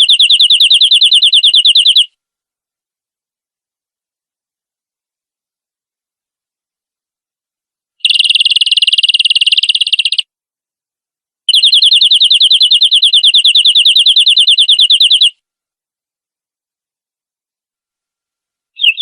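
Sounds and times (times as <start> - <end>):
canary trilling: 0.0 - 2.1, 8.0 - 10.2, 11.5 - 15.3, 18.8 - 19.0.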